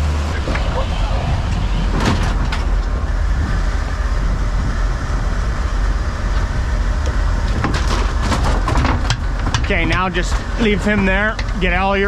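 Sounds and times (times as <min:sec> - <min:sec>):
boat engine droning: 0:00.0 - 0:12.0
wind: 0:00.0 - 0:12.0.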